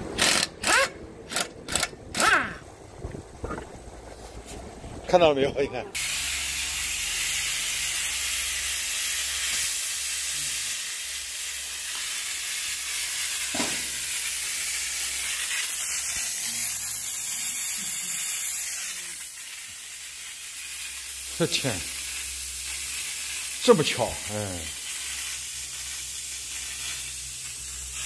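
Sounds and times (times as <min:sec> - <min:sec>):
air hissing out of tyre: 0:09.3 - 0:11.2, 0:11.9 - 0:28.0.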